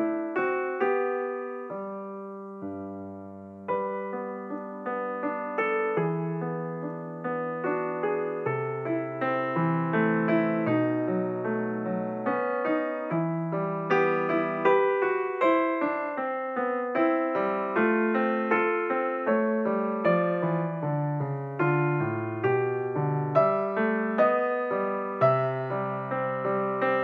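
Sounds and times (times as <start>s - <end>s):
slow piano melody: 0.0s - 27.0s.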